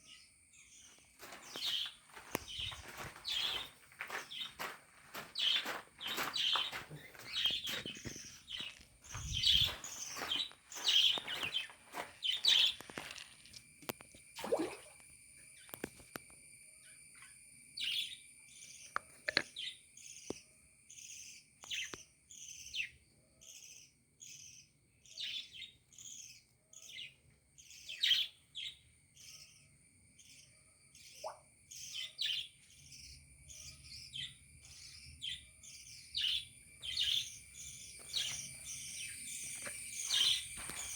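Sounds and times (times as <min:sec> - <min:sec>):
budgerigars chirping: 0:05.4 - 0:11.7, 0:33.6 - 0:38.4, 0:39.0 - 0:40.9.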